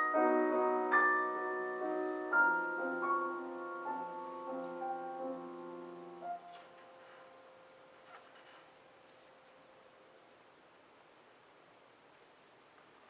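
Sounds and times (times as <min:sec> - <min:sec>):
piano playing slow chords: 0:00.0 - 0:08.0.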